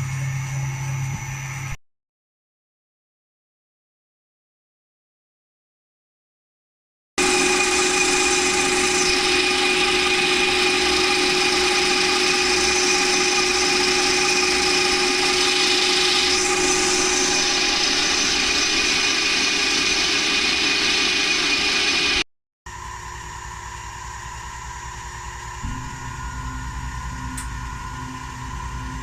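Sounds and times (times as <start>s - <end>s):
power tool whining on steel: 7.2s - 22.2s, 25.2s - 29.0s.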